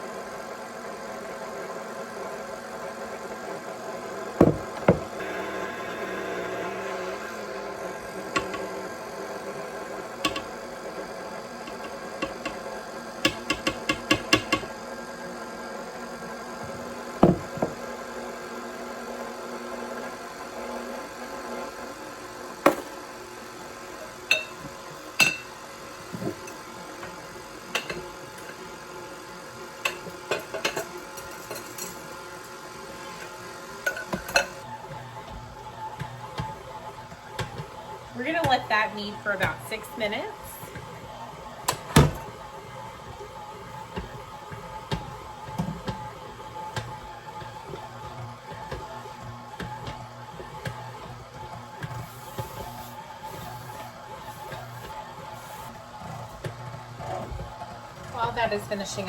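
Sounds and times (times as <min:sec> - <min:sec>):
stand mixer motor hum: 0:00.0 - 0:59.0
mixer clicks and knocks: 0:08.2 - 0:08.7, 0:10.2 - 0:10.6, 0:13.2 - 0:14.7.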